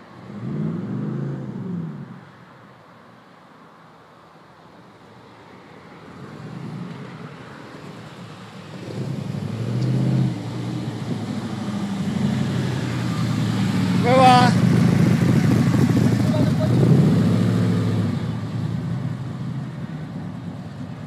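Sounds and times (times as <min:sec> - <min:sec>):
car engine at low revs: 0:06.0 - 0:21.0.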